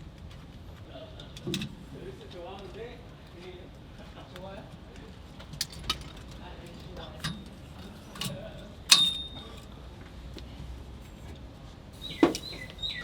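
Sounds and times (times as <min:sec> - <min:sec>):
metallic clink: 0:07.0 - 0:09.7.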